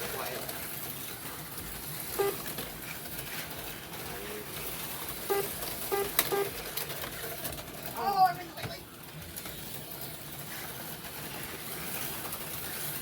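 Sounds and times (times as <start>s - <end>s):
slot cars running on track: 0.0s - 13.0s
short electronic beeps: 2.2s - 2.4s, 5.3s - 6.5s.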